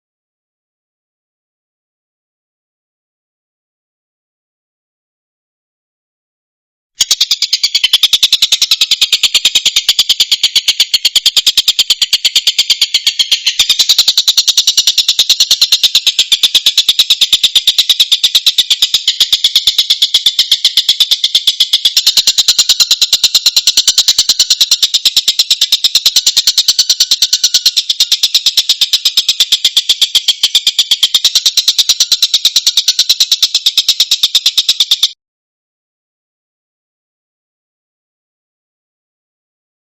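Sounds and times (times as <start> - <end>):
kingfisher calling: 7.0 - 35.1.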